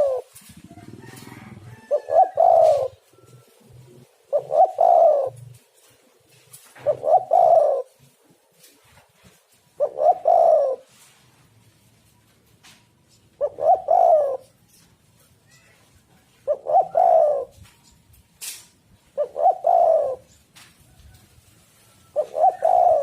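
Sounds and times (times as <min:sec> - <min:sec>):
dove cooing: 0:00.0 - 0:11.2, 0:13.2 - 0:18.0, 0:18.9 - 0:23.0.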